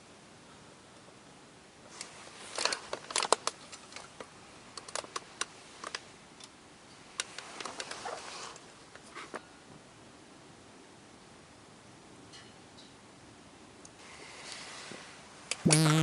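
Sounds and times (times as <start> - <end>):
small objects clicking and rustling: 2.6 - 4.2.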